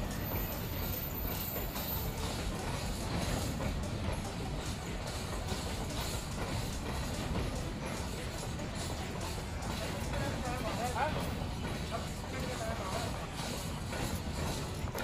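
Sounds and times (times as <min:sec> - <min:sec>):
train wheels clattering over joints: 0:00.0 - 0:15.0.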